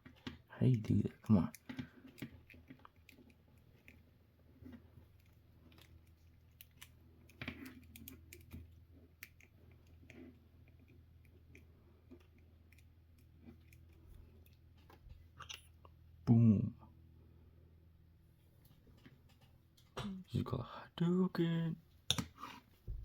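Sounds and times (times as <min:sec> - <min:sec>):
faint low hum: 0:00.0 - 0:22.2.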